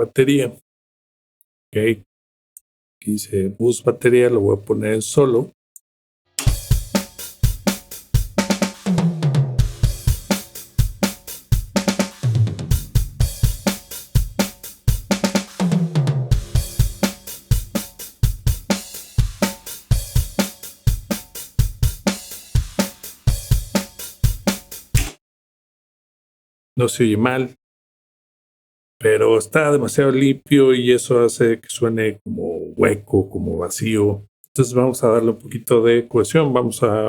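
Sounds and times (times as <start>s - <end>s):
drum kit beat: 6.4s - 25.2s
tom fills: 6.4s - 25.2s.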